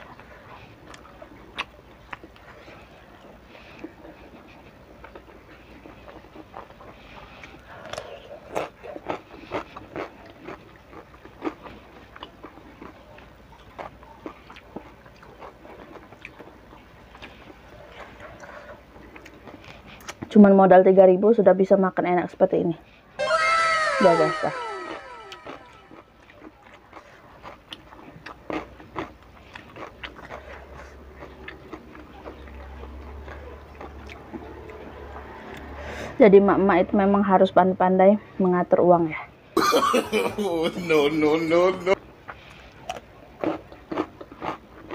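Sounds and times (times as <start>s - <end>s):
person chewing with lip smacks: 0.0s - 20.3s, 25.8s - 34.8s, 42.2s - 44.9s.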